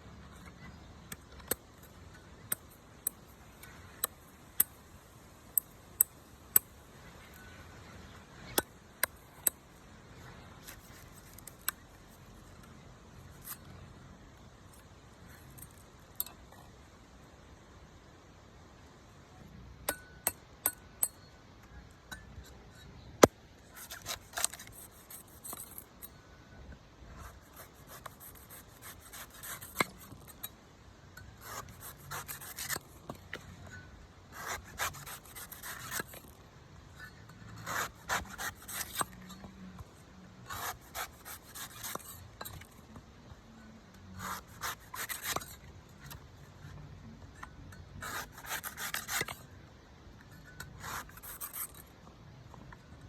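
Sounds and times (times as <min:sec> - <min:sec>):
blade scraping coconut: 0:22.4 - 0:25.9, 0:27.2 - 0:30.5, 0:31.2 - 0:33.4, 0:34.3 - 0:39.8, 0:40.4 - 0:42.9, 0:44.1 - 0:46.2, 0:48.0 - 0:49.5, 0:50.3 - 0:51.9.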